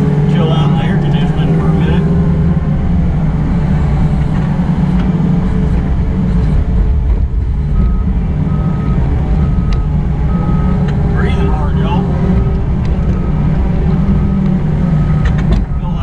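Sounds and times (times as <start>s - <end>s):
diesel engine running: 0.0s - 16.0s
alarm beeping: 7.7s - 16.0s.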